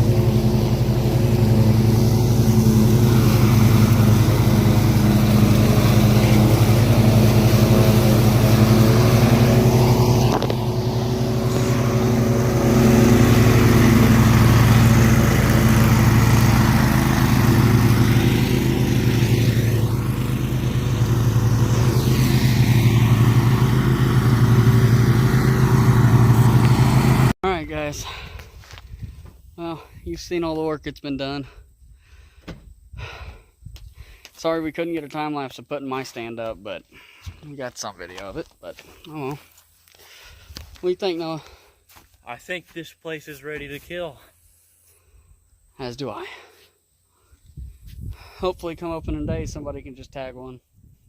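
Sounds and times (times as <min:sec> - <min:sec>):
engine running steadily: 0:00.0 - 0:28.8.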